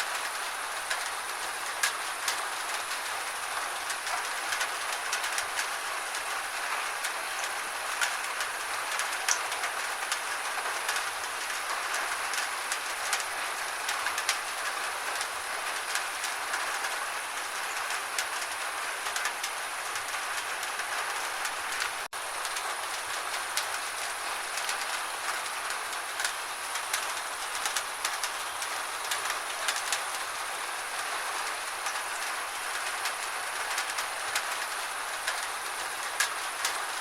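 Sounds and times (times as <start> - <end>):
gentle rain falling: 0.0 - 37.0
sharp taps of raindrops: 0.9 - 17.0, 17.6 - 30.4, 31.0 - 37.0.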